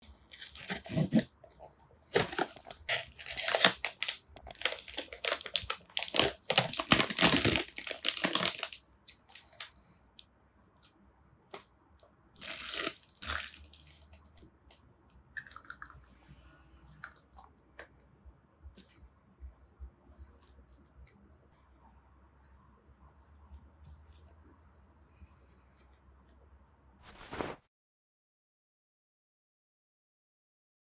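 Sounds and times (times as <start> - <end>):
packaging tearing and crinkling: 0.0 - 1.3, 1.9 - 9.8, 12.4 - 14.3
plastic pieces clicking and rustling: 2.0 - 9.9, 12.4 - 14.2.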